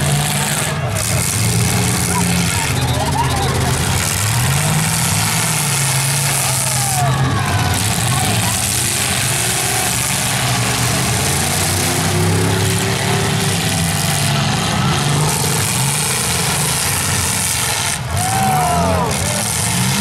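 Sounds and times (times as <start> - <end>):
car engines revving unevenly: 0.0 - 20.0.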